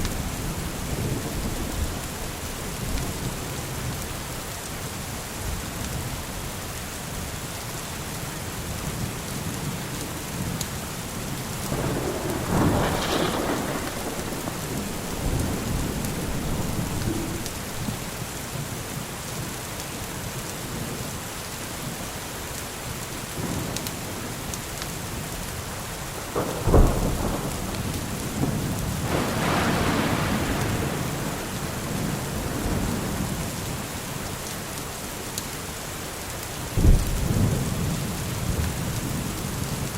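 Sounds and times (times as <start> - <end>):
rolling thunder rumble: 0.0 - 4.0, 11.0 - 18.3, 26.1 - 33.8, 36.8 - 39.9
steady rain: 0.0 - 39.9
close thunderclap: 11.6 - 18.2, 26.2 - 33.8, 36.8 - 39.9.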